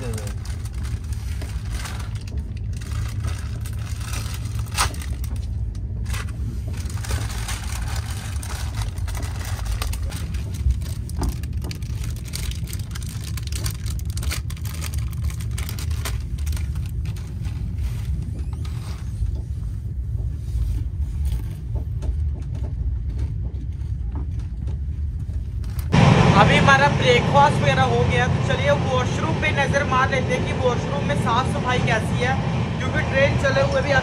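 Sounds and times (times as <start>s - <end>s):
train rumbling: 0.0s - 34.0s
snack packets crinkling: 6.9s - 17.2s.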